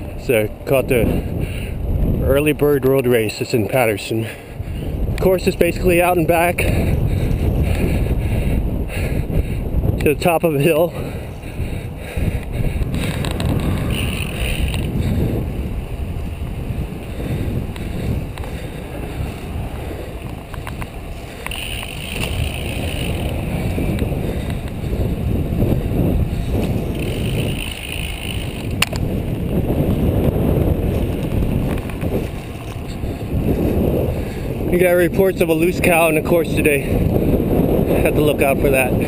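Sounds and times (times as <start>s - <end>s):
bicycle tyre noise on road: 0.0s - 39.0s
wind buffeting microphone: 0.0s - 39.0s
sharp clicks: 20.2s - 24.8s, 26.6s - 29.1s.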